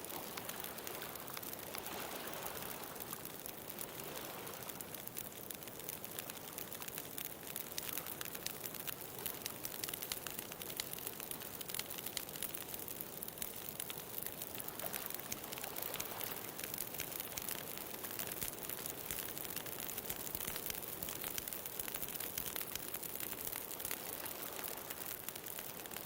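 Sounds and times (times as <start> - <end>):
ocean waves: 0.0 - 4.9, 14.7 - 16.8, 23.8 - 25.1
wood fire crackling: 0.0 - 26.0.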